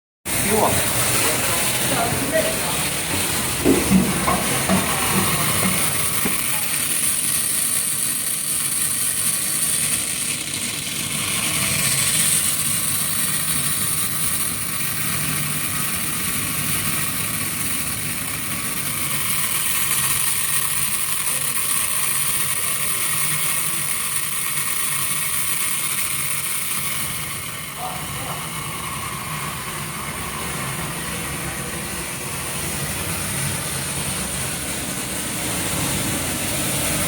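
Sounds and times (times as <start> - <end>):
machine mechanical drone: 0.3 - 37.0.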